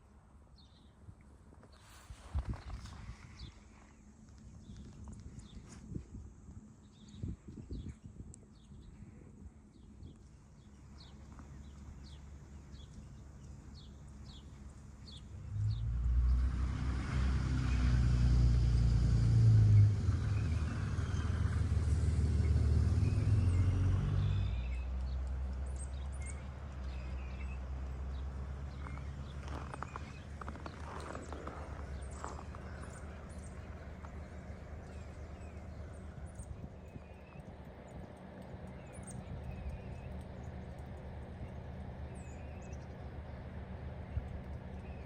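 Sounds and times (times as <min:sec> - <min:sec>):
passing vehicle engine drone: 0:11.0 - 0:45.0.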